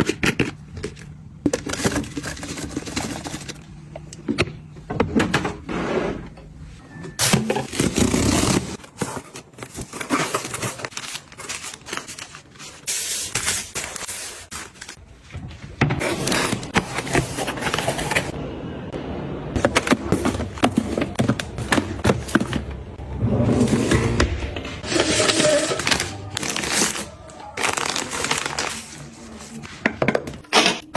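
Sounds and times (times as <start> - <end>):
household items scraping and tapping: 19.6 - 22.8.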